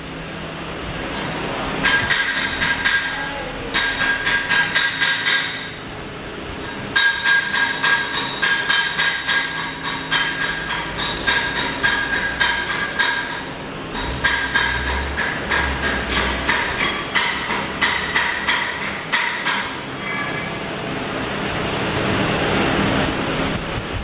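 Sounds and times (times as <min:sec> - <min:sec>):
hammer striking steel: 0:01.8 - 0:05.8, 0:06.9 - 0:20.5.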